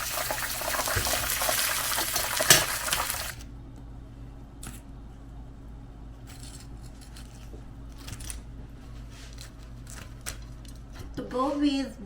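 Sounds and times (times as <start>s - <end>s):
deep-frying sizzle: 0.0s - 3.4s.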